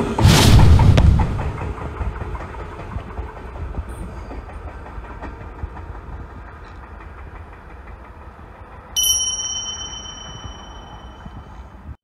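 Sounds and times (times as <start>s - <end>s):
train rumbling along track: 0.0s - 12.0s
bright chime: 9.0s - 11.5s.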